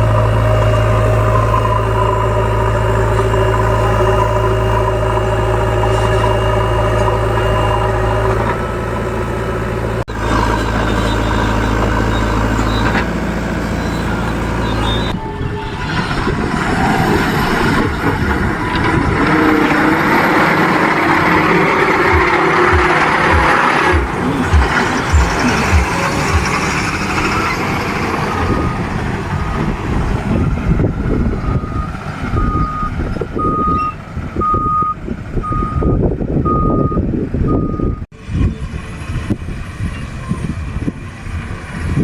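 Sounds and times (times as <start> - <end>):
thin high whine: 0.0 - 12.9
heavy diesel engine running: 0.0 - 42.0.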